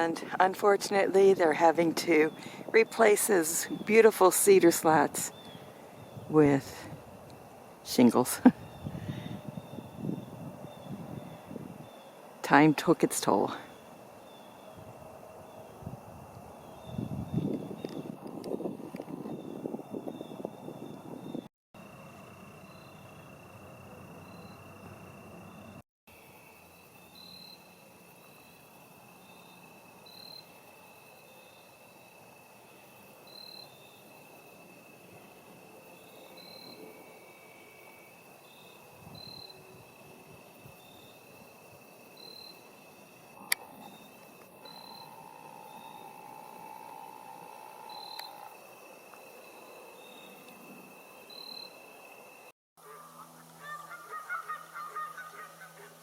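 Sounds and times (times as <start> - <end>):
crickets trilling: 0.0 - 56.0
insects chirping: 0.0 - 56.0
insect trilling: 24.0 - 31.8, 35.8 - 56.0
geese honking: 52.8 - 56.0.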